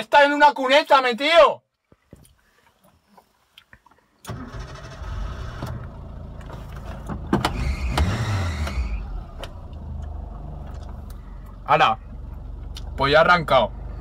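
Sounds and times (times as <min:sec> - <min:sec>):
car engine starting and revving: 0:04.3 - 0:14.0.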